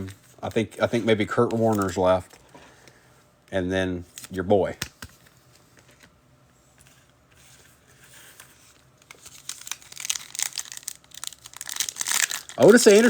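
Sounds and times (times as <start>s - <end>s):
wrapper crinkling and tearing: 9.0s - 13.0s.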